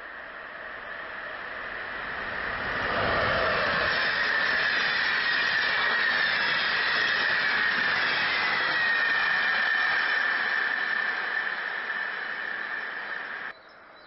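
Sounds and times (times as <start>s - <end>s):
train coaches rolling past: 0.0s - 13.5s
high wheel squeal: 2.7s - 13.5s.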